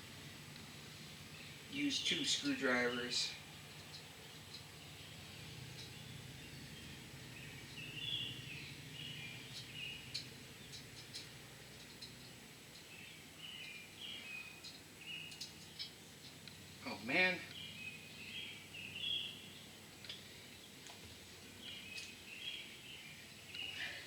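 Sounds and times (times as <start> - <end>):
low steady hum: 0.0 - 24.0
faint high chirping: 1.2 - 20.7, 21.5 - 24.0
screwdrivers clicking on metal: 9.5 - 12.9, 14.6 - 16.6.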